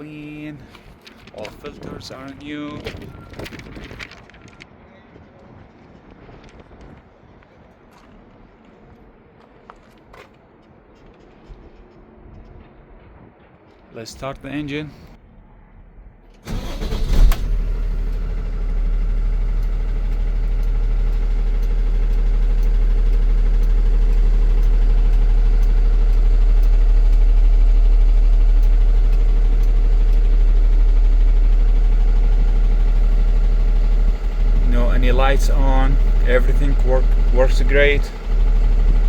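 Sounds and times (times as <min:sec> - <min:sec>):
diesel engine starter cranking: 0:16.3 - 0:39.0
diesel engine idling: 0:16.4 - 0:39.0.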